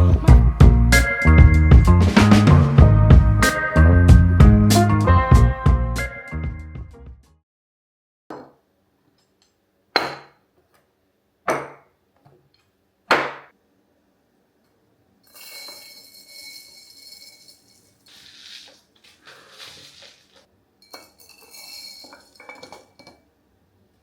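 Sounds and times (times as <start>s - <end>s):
kitchenware knocking: 10.0s - 10.4s, 11.5s - 11.9s
kitchenware scraping: 15.3s - 23.2s.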